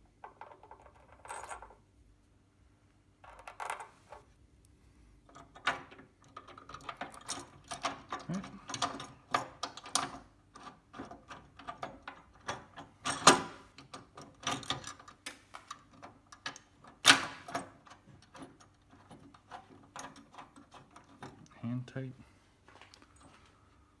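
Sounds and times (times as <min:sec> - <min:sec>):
metal washers and nuts clinking: 0:00.2 - 0:01.8, 0:03.2 - 0:04.3.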